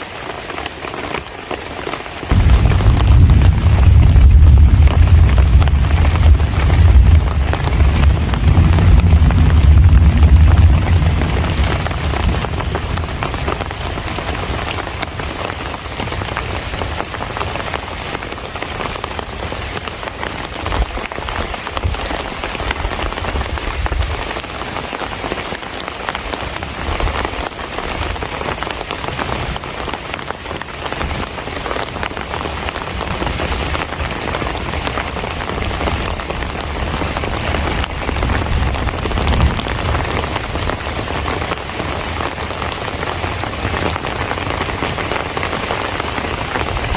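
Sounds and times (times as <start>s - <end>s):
heavy rain falling: 0.0s - 46.9s
low rumble: 2.3s - 13.6s.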